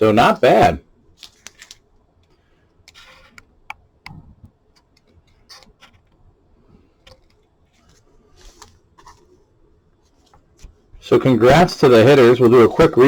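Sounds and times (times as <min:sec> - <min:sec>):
cards and plastic holders handled: 0:01.2 - 0:11.0.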